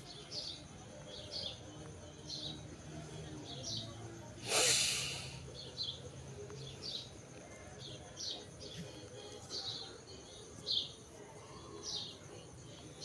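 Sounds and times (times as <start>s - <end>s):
loud breath-like hiss: 4.4s - 5.5s.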